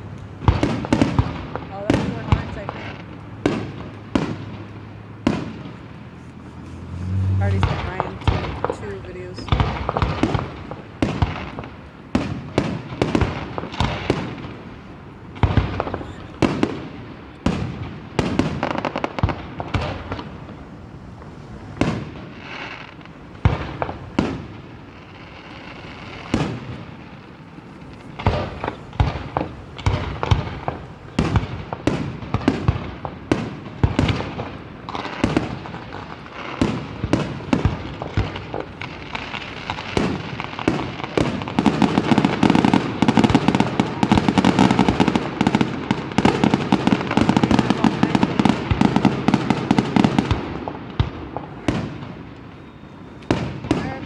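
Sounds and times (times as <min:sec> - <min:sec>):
fireworks bangs: 0:00.0 - 0:54.0.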